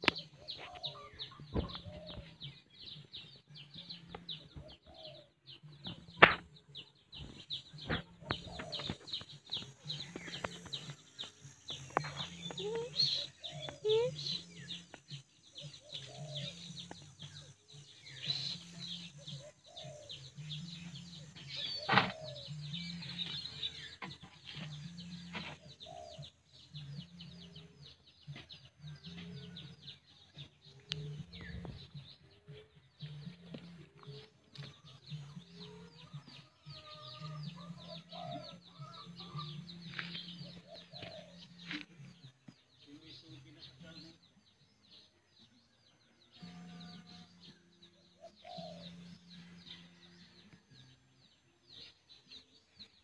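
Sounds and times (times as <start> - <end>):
birds chirping and calling: 0.0 - 53.0.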